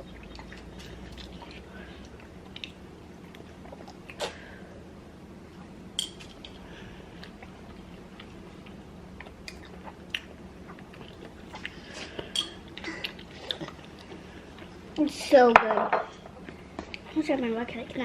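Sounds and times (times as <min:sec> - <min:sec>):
person chewing food: 0:00.0 - 0:04.4, 0:06.2 - 0:14.9.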